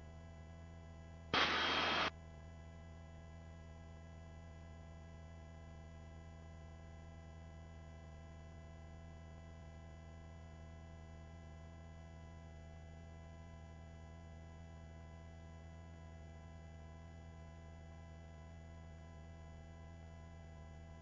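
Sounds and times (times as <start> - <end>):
high whine: 1.4 - 2.1.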